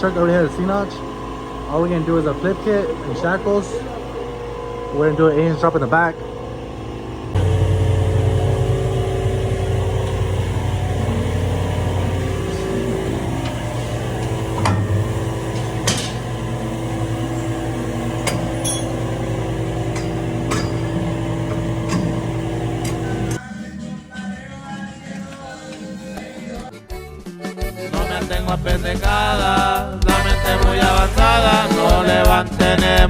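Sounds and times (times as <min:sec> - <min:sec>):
steady machine hum: 0:00.0 - 0:24.6
metal tools clinking and knocking: 0:18.3 - 0:19.0.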